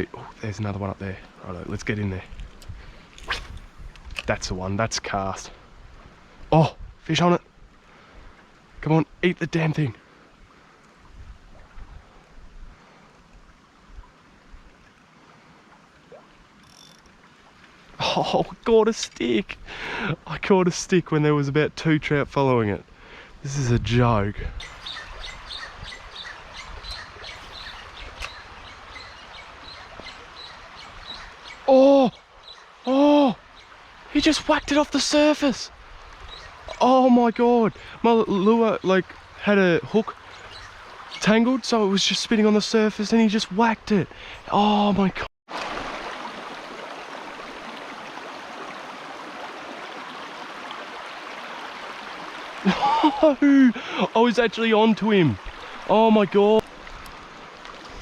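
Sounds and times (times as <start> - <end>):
creek water babbling: 0.0 - 58.0
outdoor hiss: 17.8 - 21.4, 51.0 - 58.0
small birds chirping: 24.6 - 34.9, 36.2 - 41.7.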